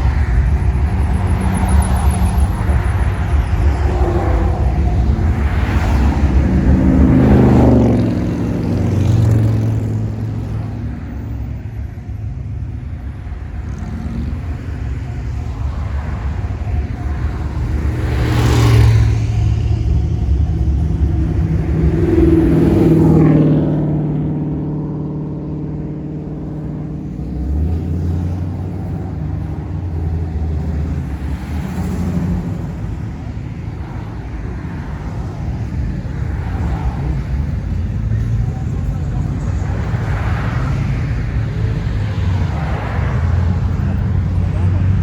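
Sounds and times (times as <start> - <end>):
car engines passing: 0.0 - 45.0
steady low hum: 19.0 - 23.7.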